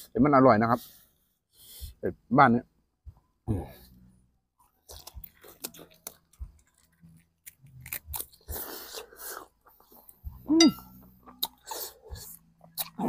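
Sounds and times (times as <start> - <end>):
chewing and biting meat: 4.8 - 10.4, 11.0 - 13.0
wet mouth clicks and smacks: 12.7 - 13.0.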